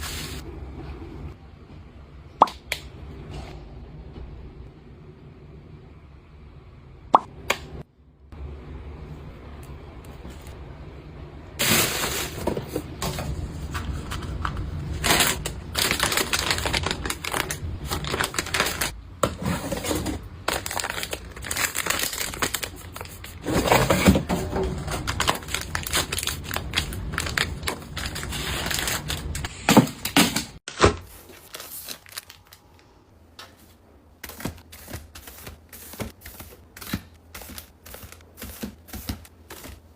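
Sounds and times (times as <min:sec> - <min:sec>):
packaging crinkling and tearing: 0:13.8 - 0:19.0, 0:20.4 - 0:23.9, 0:24.6 - 0:29.5, 0:30.7 - 0:32.9.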